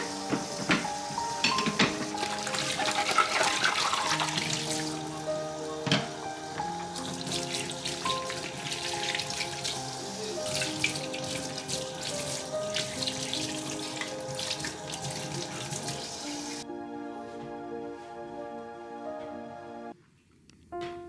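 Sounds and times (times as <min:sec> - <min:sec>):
tap water running into sink: 0:00.0 - 0:16.6
soft background music: 0:00.0 - 0:20.0, 0:20.6 - 0:21.0.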